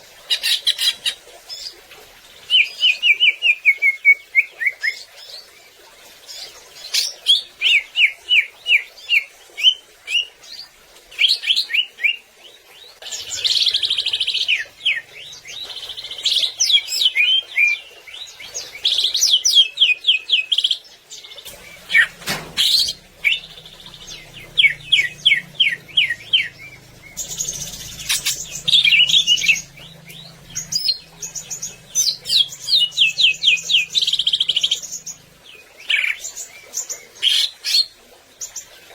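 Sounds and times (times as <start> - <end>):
bird singing whistles and trills: 21.5 - 35.2.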